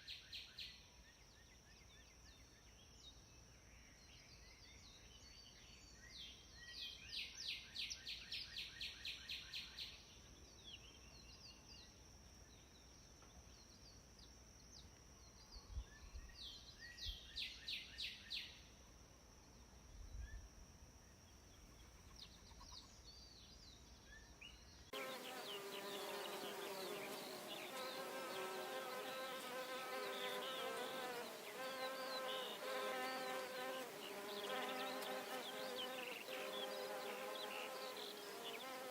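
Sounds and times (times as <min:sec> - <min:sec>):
dense buzzing of insects: 0:00.0 - 0:38.9
fast repeated insect chirps: 0:25.0 - 0:38.9
insect high-pitched drone: 0:25.0 - 0:38.9.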